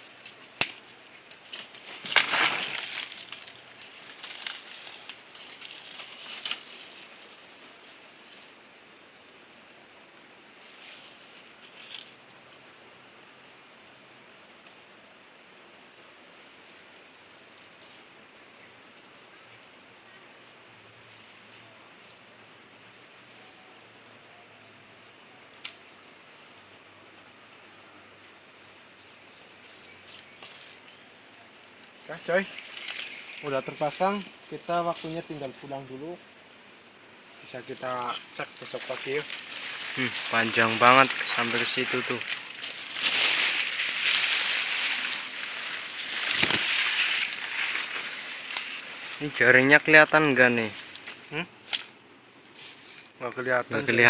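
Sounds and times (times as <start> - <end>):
insects hissing: 0.0 - 54.0
mist net rustling and scraping: 1.6 - 7.3, 38.1 - 49.3.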